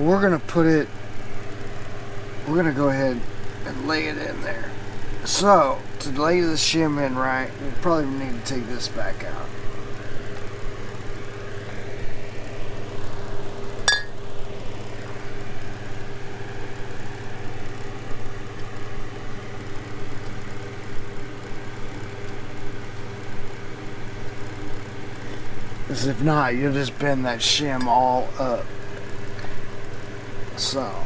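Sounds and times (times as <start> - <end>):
low mechanical hum: 0.0 - 31.0
sharp metal clink: 13.9 - 14.2.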